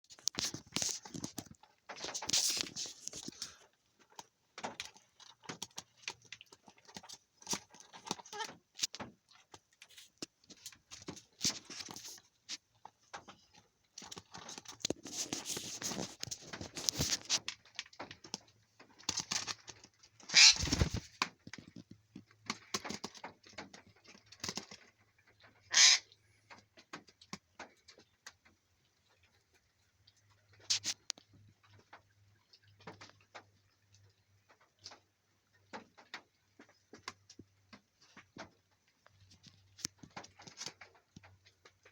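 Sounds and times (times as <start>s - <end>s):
clicks and rustling: 0.1s - 25.0s
bird calling and squawking: 20.3s - 20.9s, 25.7s - 26.1s.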